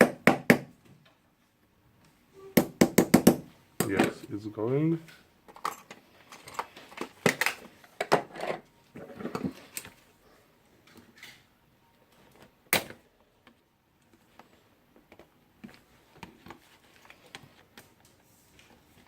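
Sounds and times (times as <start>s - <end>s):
metal parts clicking and clattering: 5.1s - 8.6s.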